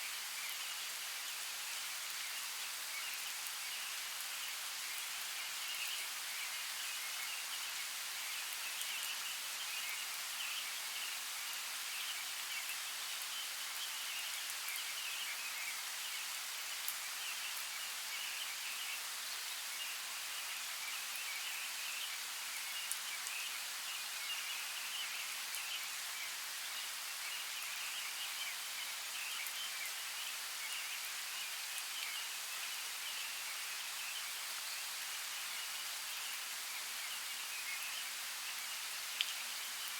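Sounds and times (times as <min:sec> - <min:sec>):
steady rain hiss: 0:00.0 - 0:39.9
rain drop ticks: 0:39.2 - 0:39.4.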